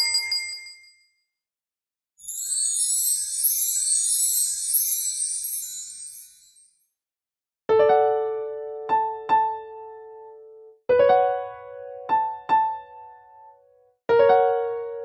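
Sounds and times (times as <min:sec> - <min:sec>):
gentle piano melody: 0:07.7 - 0:15.0.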